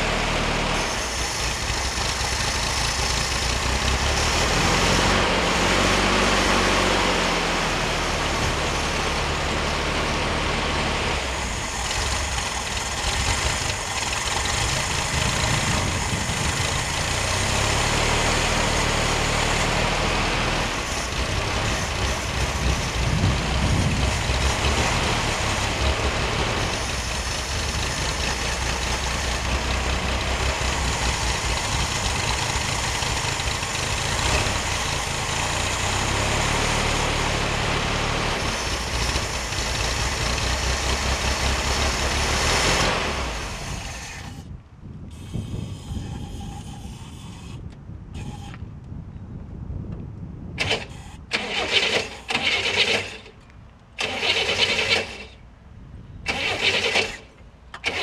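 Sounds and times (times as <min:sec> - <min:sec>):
car engine idling: 0:00.0 - 0:44.4.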